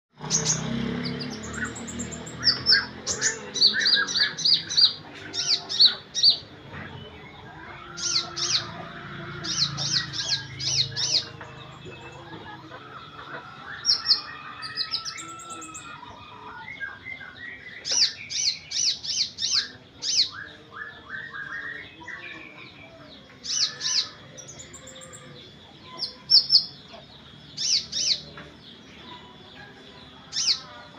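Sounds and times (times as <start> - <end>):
other birds calling: 0.1 - 30.9.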